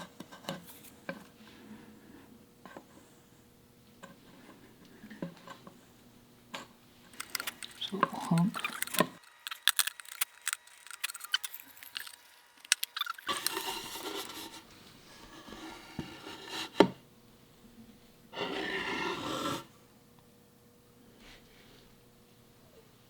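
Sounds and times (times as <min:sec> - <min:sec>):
hand tool scraping wood: 0:12.8 - 0:16.9, 0:18.4 - 0:19.7.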